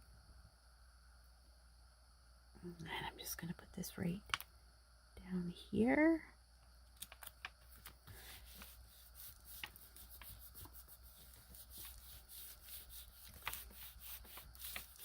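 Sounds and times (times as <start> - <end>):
low room hum: 0.0 - 15.0
faint rubbing: 8.1 - 15.0.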